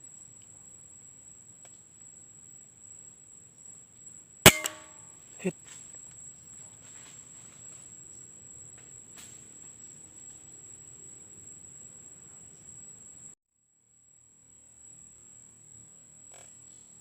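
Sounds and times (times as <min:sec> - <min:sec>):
air rifle shot: 0:04.5 - 0:05.0.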